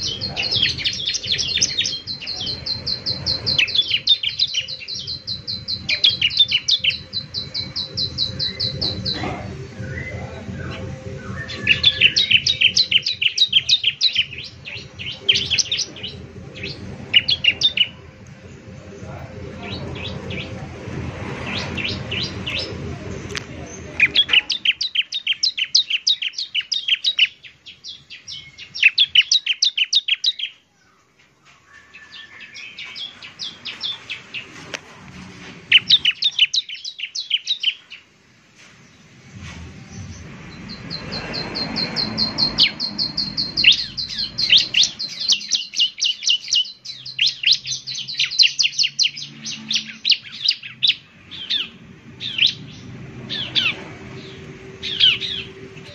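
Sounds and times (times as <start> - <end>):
bird singing trilled chirps: 0.0 - 18.2, 23.7 - 31.0, 35.7 - 38.0, 39.9 - 55.9.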